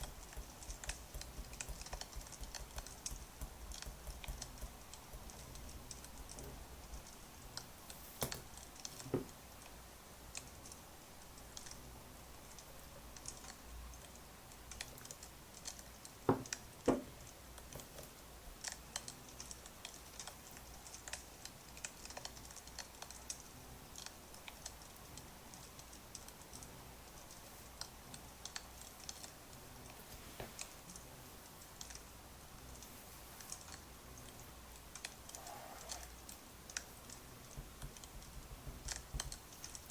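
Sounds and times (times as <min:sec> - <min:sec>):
wood fire crackling: 0:00.0 - 0:11.8, 0:12.5 - 0:39.9
faint low hum: 0:00.0 - 0:39.9.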